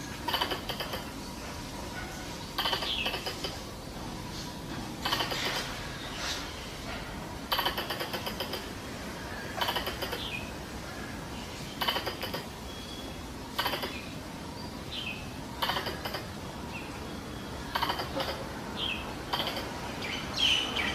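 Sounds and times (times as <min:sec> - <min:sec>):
squirrel chattering call: 0:00.0 - 0:01.3, 0:02.4 - 0:03.9, 0:05.0 - 0:05.8, 0:07.4 - 0:11.0, 0:11.7 - 0:14.3, 0:14.9 - 0:20.9.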